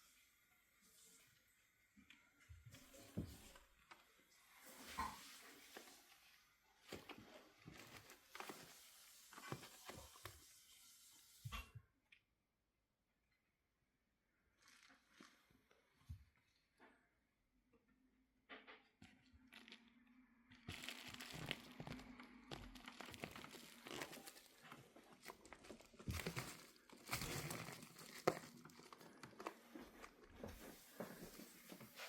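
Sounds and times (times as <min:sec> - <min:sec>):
irregular crackles: 0:20.7 - 0:30.2
bag crinkling and rustling: 0:20.7 - 0:30.3.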